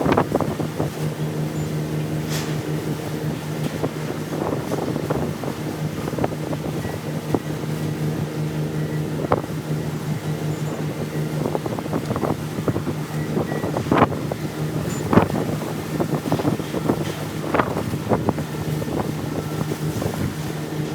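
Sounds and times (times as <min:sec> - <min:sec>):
motor hum: 0:00.0 - 0:20.9.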